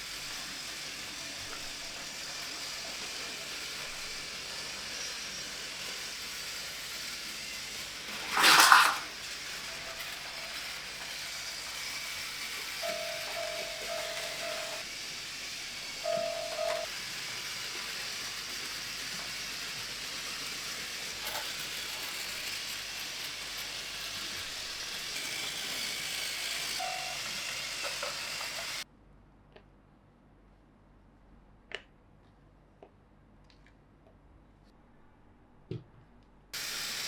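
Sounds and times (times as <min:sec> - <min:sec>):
toy train motors whirring: 0:00.0 - 0:28.9, 0:36.6 - 0:37.0.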